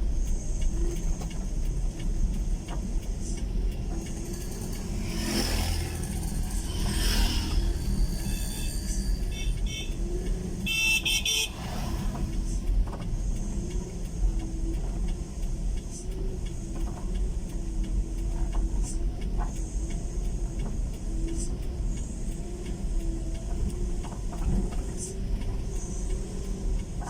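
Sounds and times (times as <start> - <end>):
low road rumble: 0.0 - 27.0
vehicle engine running: 0.0 - 27.0
vehicle horn: 9.3 - 10.0, 10.6 - 11.7.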